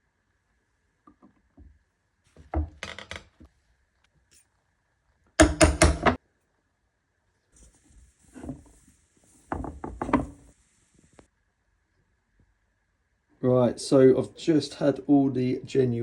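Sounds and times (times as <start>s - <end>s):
hard objects knocking: 5.4s - 6.2s, 9.5s - 10.5s.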